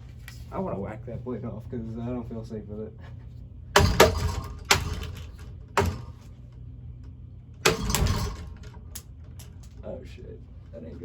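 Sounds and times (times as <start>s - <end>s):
fan motor low hum: 0.0s - 11.0s
fan blades whacked with rattle: 3.7s - 6.5s, 7.6s - 10.0s.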